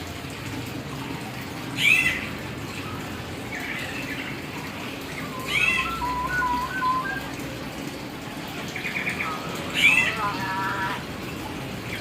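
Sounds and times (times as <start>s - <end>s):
myna bird calling: 1.7s - 2.4s, 3.5s - 7.4s, 8.7s - 11.0s.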